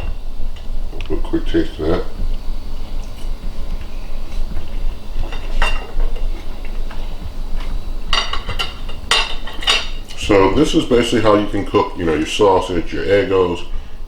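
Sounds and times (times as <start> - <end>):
steady low hum: 0.0 - 14.0
cutlery clinking on plate: 8.1 - 10.0.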